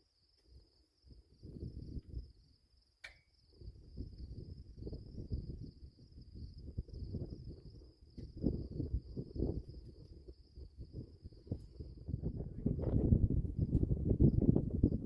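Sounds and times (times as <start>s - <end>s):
insects trilling: 0.0s - 12.9s
sharp click: 3.0s - 3.3s.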